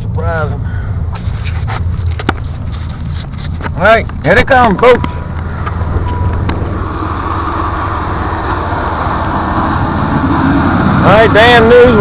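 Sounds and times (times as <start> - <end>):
truck engine rumble: 0.0 - 12.0
rushing noise: 5.0 - 12.0.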